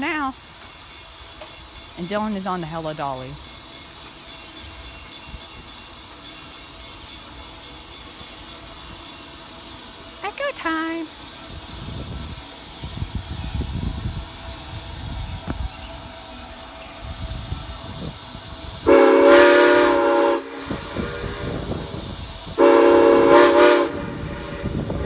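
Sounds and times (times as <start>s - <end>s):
standing train rumble and hiss: 0.0s - 25.0s
steam locomotive whistle: 13.0s - 25.0s.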